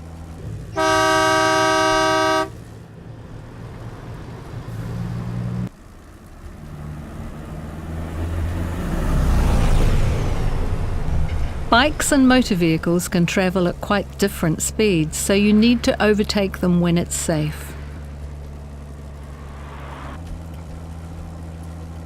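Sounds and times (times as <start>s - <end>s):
heavy vehicle engine and road noise: 0.0s - 22.0s
two-tone vehicle horn blast: 0.7s - 2.6s.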